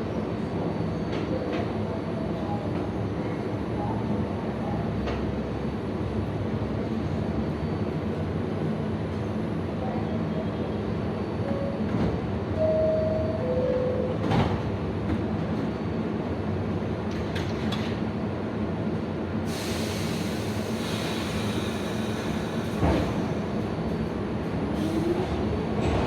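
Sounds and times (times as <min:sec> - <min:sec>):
subway train rumble: 0:00.0 - 0:26.0.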